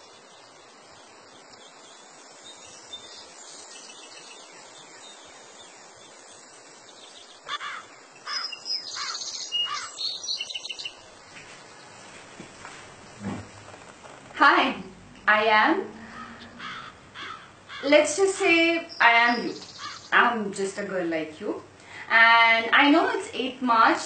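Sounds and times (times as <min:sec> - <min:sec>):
background hiss: 0:00.0 - 0:24.0
birds chirping and whistling: 0:08.3 - 0:11.0, 0:18.4 - 0:20.1.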